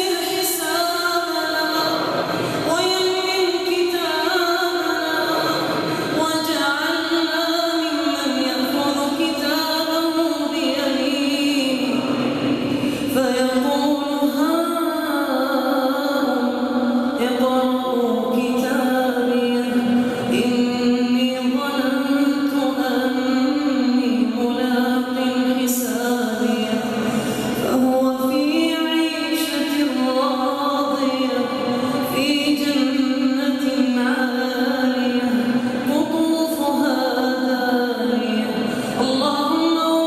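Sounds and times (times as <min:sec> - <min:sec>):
person chanting melodic recitation: 0:00.0 - 0:40.0.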